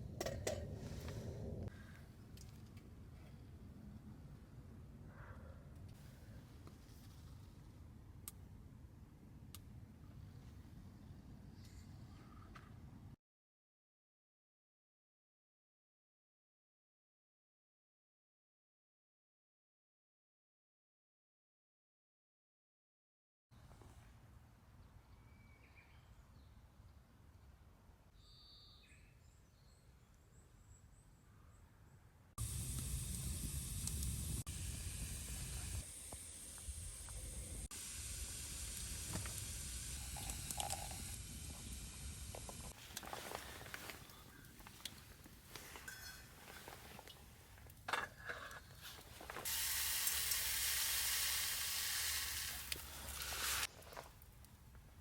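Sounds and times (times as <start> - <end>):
food sizzling in a hot pan: 32.4 - 42.7, 49.4 - 53.7.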